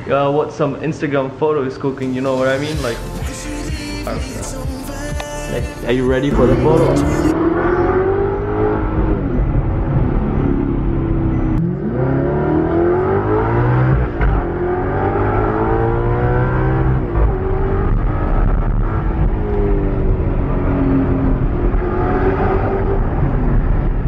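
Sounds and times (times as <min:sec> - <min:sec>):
car engine accelerating hard: 0:05.9 - 0:24.0.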